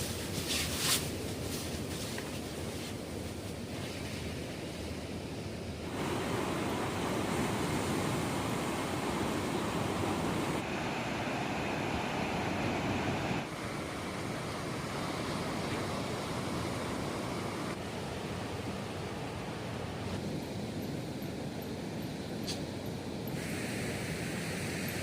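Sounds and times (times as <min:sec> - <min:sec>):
sea surf washing: 0:05.8 - 0:22.4.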